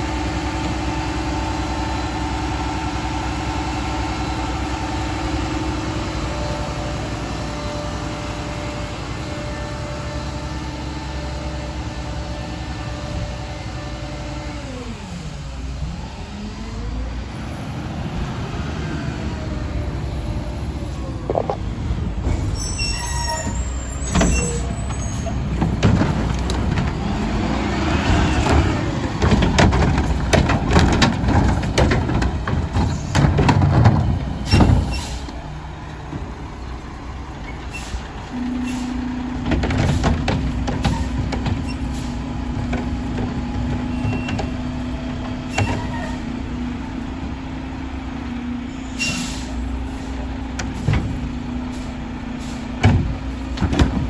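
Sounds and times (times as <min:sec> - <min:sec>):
diesel engine running: 0:00.0 - 0:54.0
clanks and bangs of trash loading: 0:23.4 - 0:36.9, 0:37.7 - 0:48.0, 0:48.9 - 0:54.0
air brake hiss: 0:48.9 - 0:50.0.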